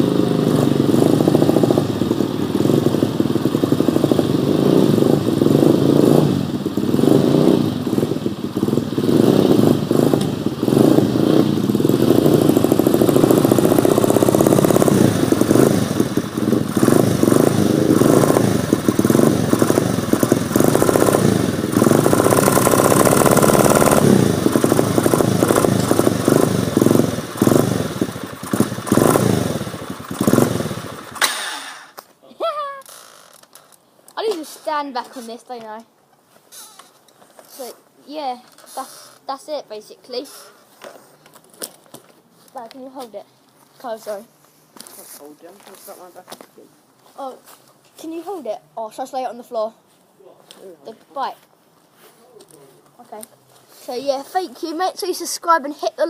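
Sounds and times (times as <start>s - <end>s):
dirt bike engine running: 0.0s - 32.0s.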